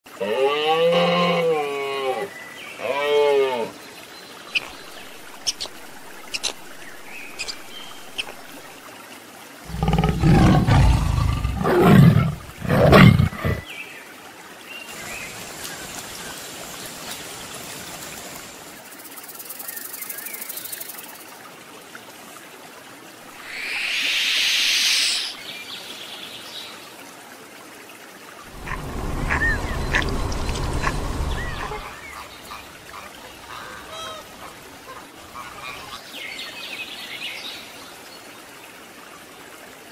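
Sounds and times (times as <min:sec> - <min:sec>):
animal sounds: 0:04.6 - 0:08.5, 0:09.6 - 0:13.7, 0:28.5 - 0:36.0
deep loud animal calls: 0:09.7 - 0:13.6, 0:28.5 - 0:32.3
short hissing burst: 0:23.4 - 0:25.4.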